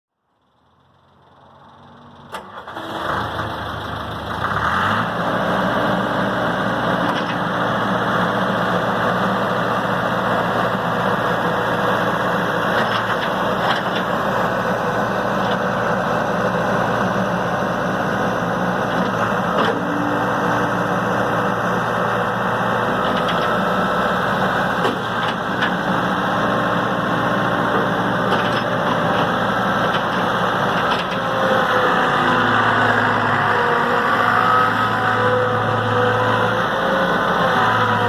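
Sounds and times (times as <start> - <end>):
engine starting and running: 0.3 - 8.4, 18.4 - 38.0.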